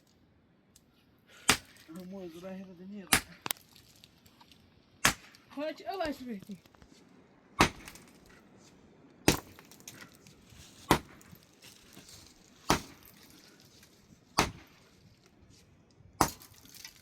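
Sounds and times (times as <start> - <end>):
heavy sharp blows: 7.6 - 8.2.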